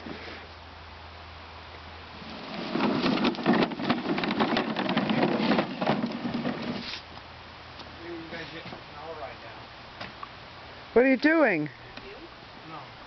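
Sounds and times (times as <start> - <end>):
dense crackling rattle: 2.6 - 6.7.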